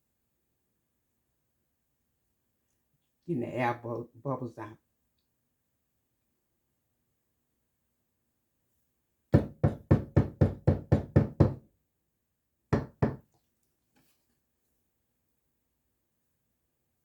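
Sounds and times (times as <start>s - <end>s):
cake pan knocking on countertop: 9.4s - 11.6s, 12.8s - 13.2s.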